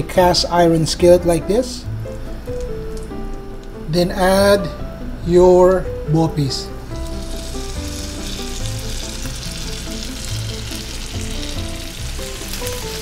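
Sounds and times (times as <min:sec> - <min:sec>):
food sizzling in butter: 0:06.9 - 0:13.0.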